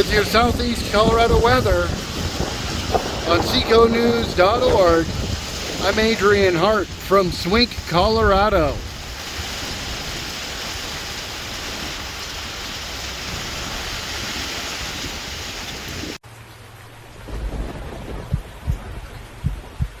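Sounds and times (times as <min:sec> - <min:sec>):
thunder rumbling: 0:00.0 - 0:16.2, 0:17.0 - 0:20.0
torrential rain hiss: 0:00.0 - 0:20.0
short low thumps: 0:17.3 - 0:20.0.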